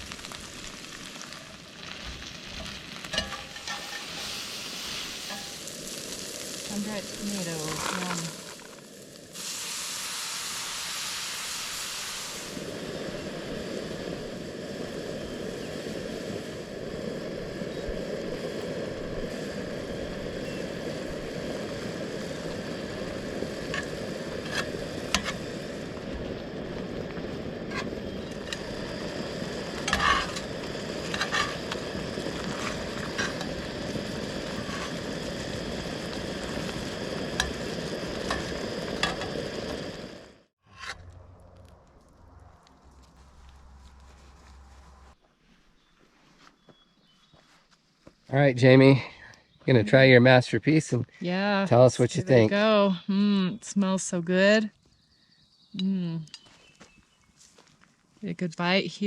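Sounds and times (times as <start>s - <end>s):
food sizzling in a frying pan: 0.0s - 40.9s.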